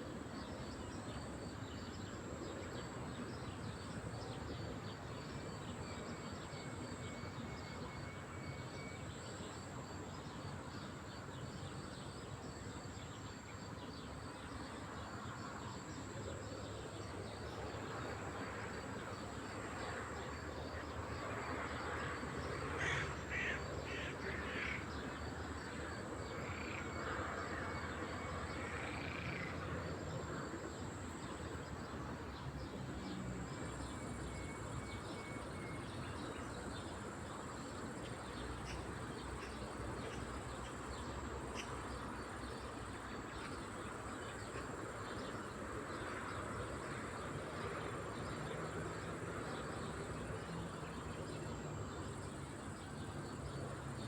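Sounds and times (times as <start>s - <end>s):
lakeside ambience hiss: 0.0s - 54.0s.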